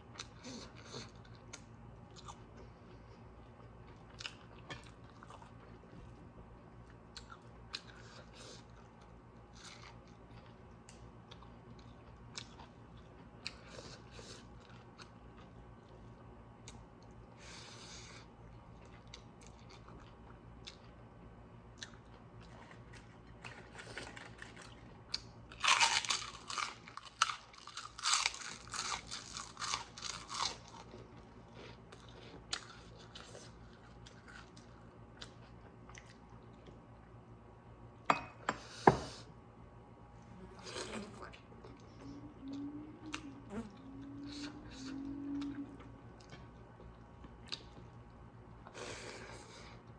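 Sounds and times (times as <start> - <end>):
person chewing food: 0.1 - 6.2, 6.8 - 21.0, 21.7 - 36.8, 41.6 - 49.9
crunching: 25.5 - 30.9.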